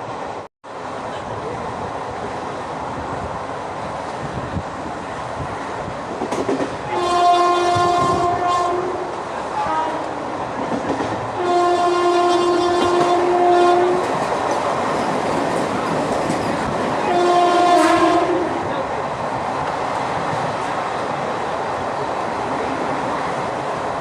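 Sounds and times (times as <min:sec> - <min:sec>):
train rumbling on rails: 0:00.0 - 0:24.0
train horn blasts: 0:06.9 - 0:10.3, 0:11.3 - 0:14.1, 0:17.0 - 0:18.7.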